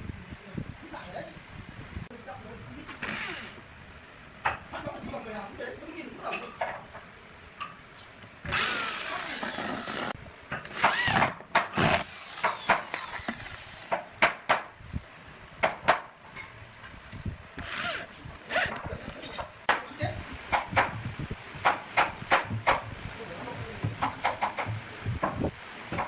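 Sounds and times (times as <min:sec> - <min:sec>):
power tool burst: 0:03.0 - 0:03.6, 0:08.5 - 0:13.9.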